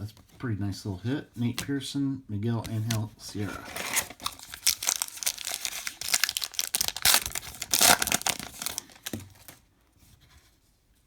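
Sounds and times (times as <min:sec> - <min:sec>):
wrapper tearing and crinkling: 0:03.6 - 0:09.6.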